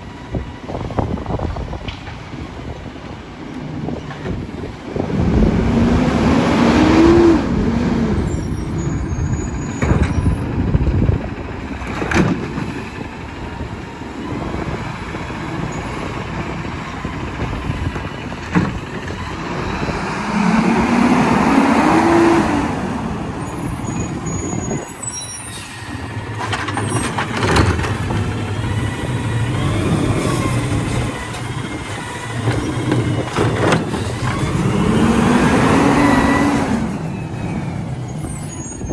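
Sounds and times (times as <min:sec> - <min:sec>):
garbage truck engine revving: 0:04.7 - 0:38.9
clanks and knocks: 0:11.7 - 0:12.8, 0:17.3 - 0:19.6, 0:26.3 - 0:34.7.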